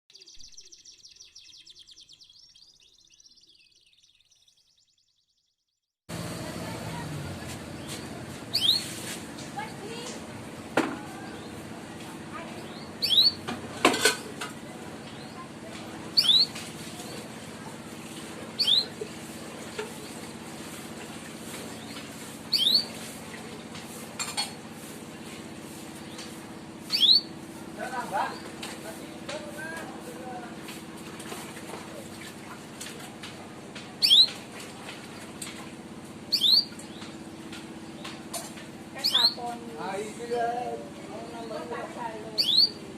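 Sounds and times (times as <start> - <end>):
canary chirping: 7.6 - 9.0, 11.2 - 13.5, 16.1 - 17.3, 18.6 - 19.1, 21.7 - 23.0, 26.0 - 28.6, 34.0 - 34.4, 36.3 - 37.2, 39.0 - 39.6, 41.2 - 42.8
canary rising whistle call: 26.9 - 27.3.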